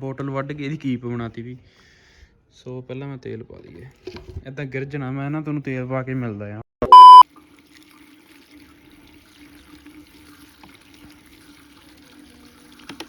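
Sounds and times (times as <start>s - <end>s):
petrol trickling into tank: 7.4s - 13.0s.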